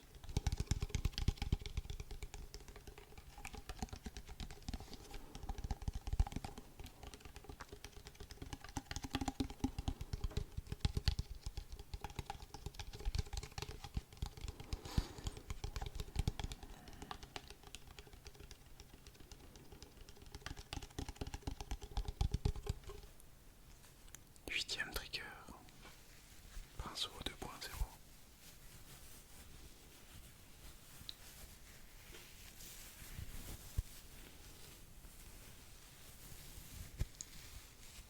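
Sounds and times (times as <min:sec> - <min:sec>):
rapid light tapping: 0:00.0 - 0:23.2.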